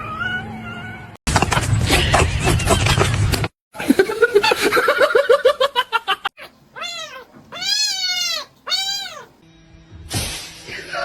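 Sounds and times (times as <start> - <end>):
cat stuttering cries: 6.4 - 9.3
cat meowing: 6.4 - 9.4.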